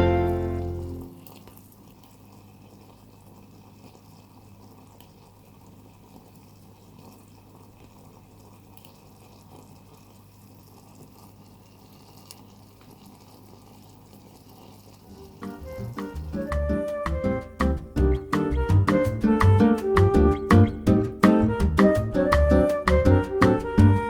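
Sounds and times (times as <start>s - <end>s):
broth bubbling in a pot: 0.4s - 18.7s.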